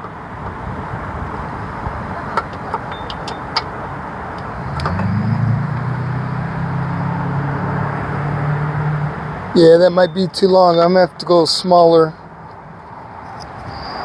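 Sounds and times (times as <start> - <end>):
low engine hum: 0.0 - 10.8
socket and ratchet on engine parts: 2.2 - 3.8.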